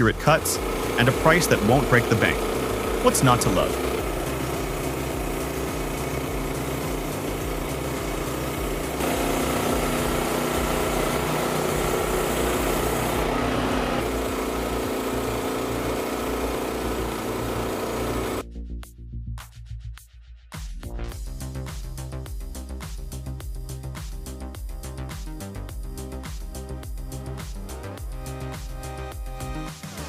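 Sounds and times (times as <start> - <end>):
small petrol engine running: 0.0 - 18.4.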